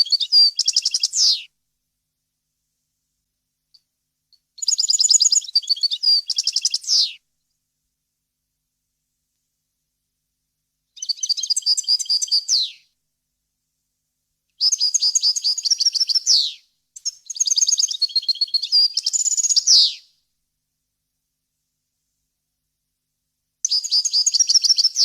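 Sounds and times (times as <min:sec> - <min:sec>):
goldfinch singing: 0:00.0 - 0:01.4.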